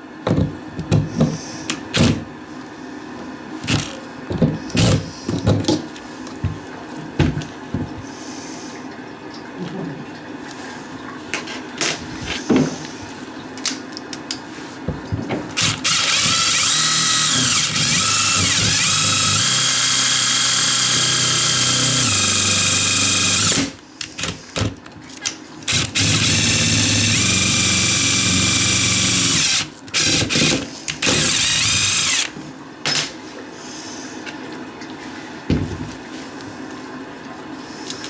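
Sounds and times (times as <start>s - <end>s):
power drill running: 3.6s - 4.1s, 15.6s - 24.7s, 25.7s - 32.3s.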